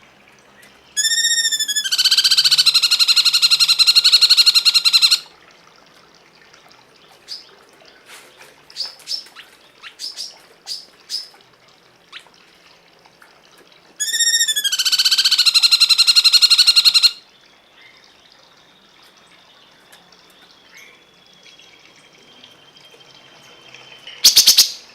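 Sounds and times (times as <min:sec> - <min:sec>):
bird chirping: 0:18.6 - 0:24.9.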